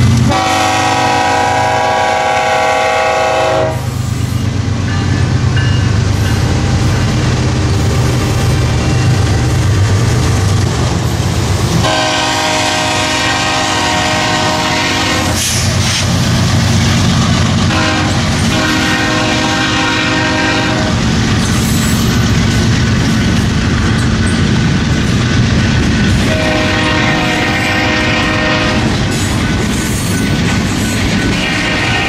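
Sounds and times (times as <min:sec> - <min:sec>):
diesel locomotives rumbling: 0:00.0 - 0:32.0
wheels clacking on rails: 0:00.0 - 0:32.0
locomotive air horn: 0:00.3 - 0:04.1, 0:11.8 - 0:15.6, 0:17.7 - 0:21.0, 0:26.3 - 0:28.9.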